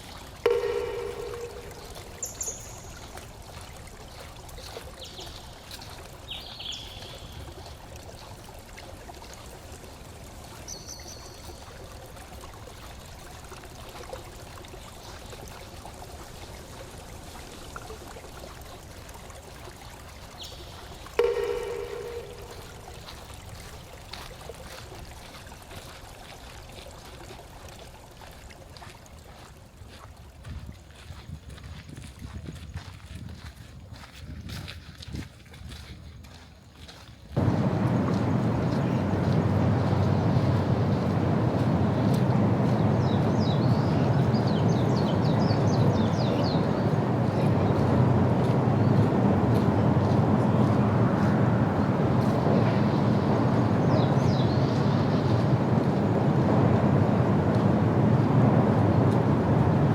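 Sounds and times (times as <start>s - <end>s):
stream of water trickling: 0.0s - 59.9s
ringing tone: 0.5s - 3.0s, 21.2s - 23.1s
short high chirps: 0.5s - 3.0s, 21.2s - 23.0s
low rumble: 37.4s - 59.9s.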